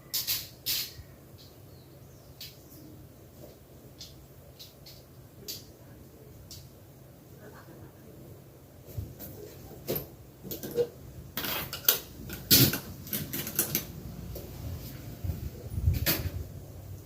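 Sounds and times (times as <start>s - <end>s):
objects clicking and clattering: 9.2s - 14.0s.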